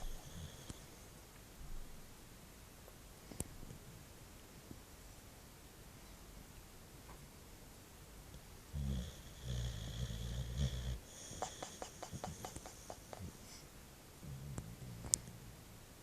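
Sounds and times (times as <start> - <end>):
dog snoring: 0.0 - 0.9, 8.7 - 13.4, 14.2 - 15.6.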